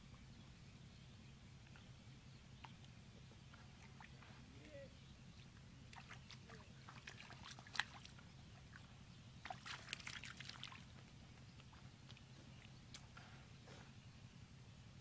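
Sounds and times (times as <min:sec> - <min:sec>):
low steady hum: 0:00.0 - 0:15.0
wet squelches in mud: 0:05.9 - 0:13.4.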